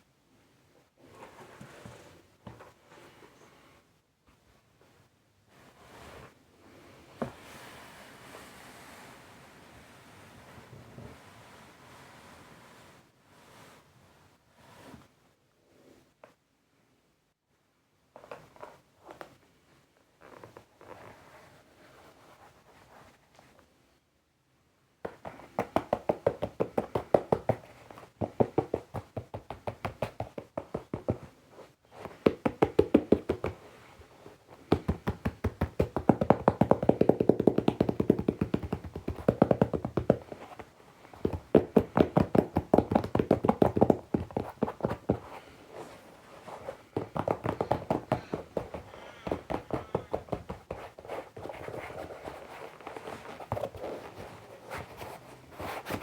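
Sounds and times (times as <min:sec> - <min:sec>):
fingernails tapping on foam clogs: 0:25.1 - 0:31.3, 0:32.0 - 0:33.7, 0:34.5 - 0:54.9.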